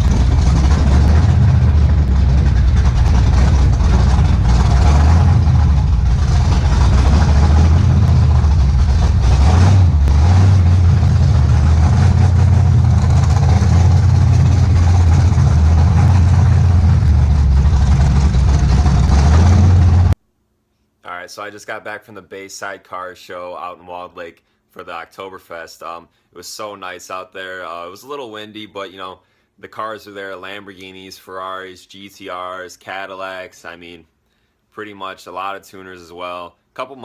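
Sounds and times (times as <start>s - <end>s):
car engine and road noise: 0.0s - 20.2s.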